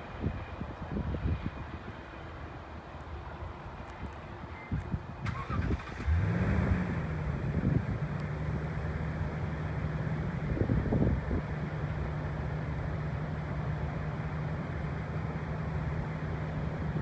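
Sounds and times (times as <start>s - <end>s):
engine throttling up: 5.3s - 17.0s.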